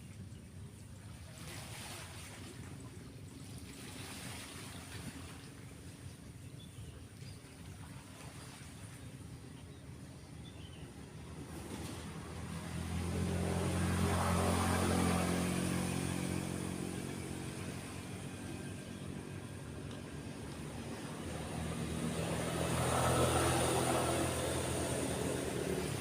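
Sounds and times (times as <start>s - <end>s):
road vehicles passing: 10.3s - 26.0s.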